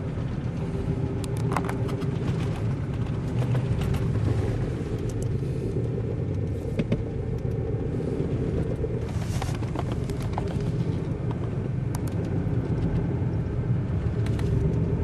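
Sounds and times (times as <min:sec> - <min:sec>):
motor vehicle rumbling: 0:00.0 - 0:15.0
light clicks and rattles: 0:00.1 - 0:07.6.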